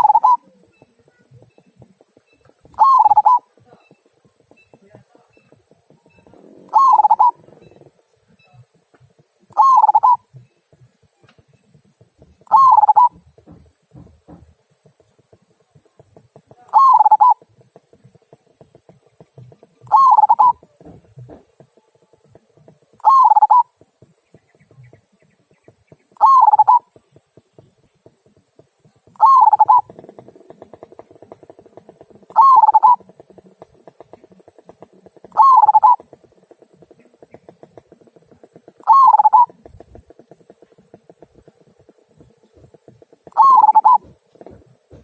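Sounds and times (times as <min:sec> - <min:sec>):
dove cooing: 0:00.0 - 0:01.5, 0:02.2 - 0:04.0, 0:05.9 - 0:08.8, 0:09.4 - 0:10.9, 0:12.4 - 0:14.1, 0:16.6 - 0:17.5, 0:19.4 - 0:23.8, 0:26.1 - 0:27.0, 0:29.1 - 0:45.0.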